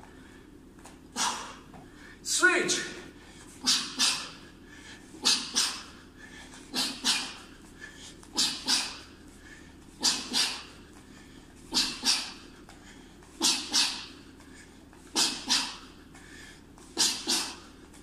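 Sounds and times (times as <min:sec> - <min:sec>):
person exhaling hard: 0:11.7 - 0:12.4.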